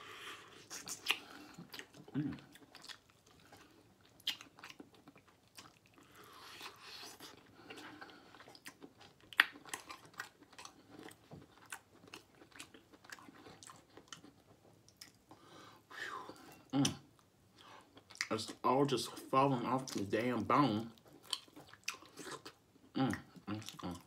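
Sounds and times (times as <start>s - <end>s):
chewing and biting meat: 0.7s - 15.2s, 21.0s - 22.6s.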